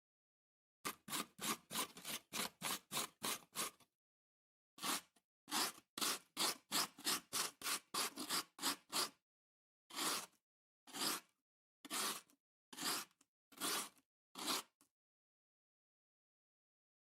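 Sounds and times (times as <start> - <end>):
metal grater scraped rhythmically: 0.9 - 3.7.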